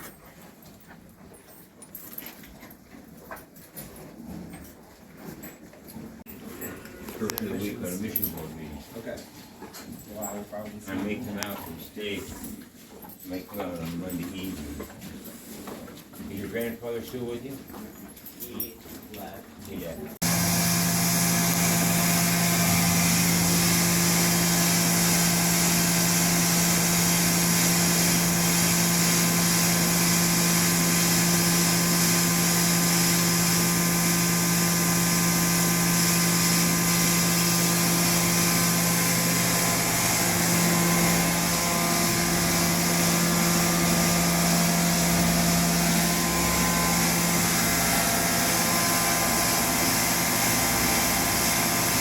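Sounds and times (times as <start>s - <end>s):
machine humming and hissing: 20.2s - 52.0s.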